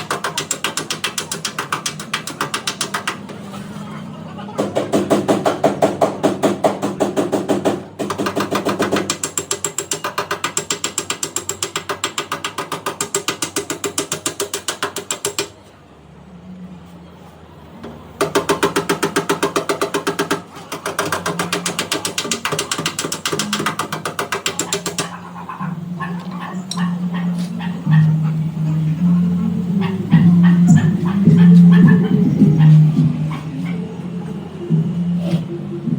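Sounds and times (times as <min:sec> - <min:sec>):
fast mechanical clicking: 0:00.0 - 0:03.4, 0:04.6 - 0:15.6, 0:18.2 - 0:26.9.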